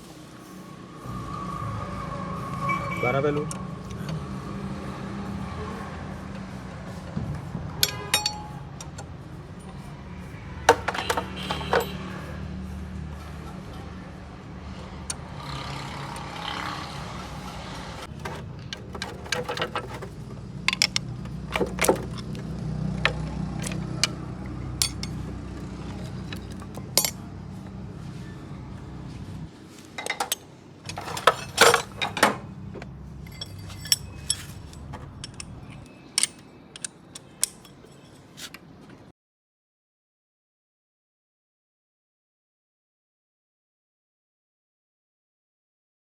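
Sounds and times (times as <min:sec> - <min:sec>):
metal tools clinking and knocking: 0:07.8 - 0:09.1, 0:10.7 - 0:12.1, 0:18.0 - 0:27.7, 0:30.0 - 0:38.6.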